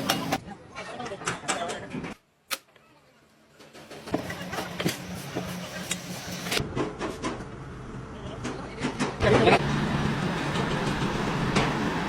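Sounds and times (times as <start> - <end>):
machine humming and clicking: 9.2 - 12.0.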